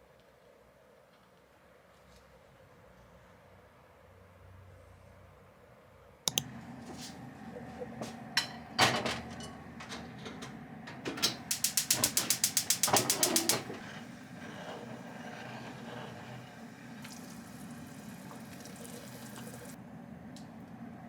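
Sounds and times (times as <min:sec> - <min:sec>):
fast run of clicks: 0:11.5 - 0:13.7.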